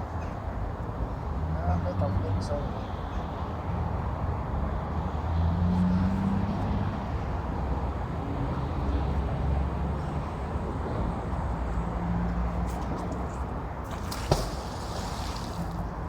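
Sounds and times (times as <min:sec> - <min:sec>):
traffic rumble on a bridge: 0:00.0 - 0:16.0
cars passing: 0:03.7 - 0:16.0.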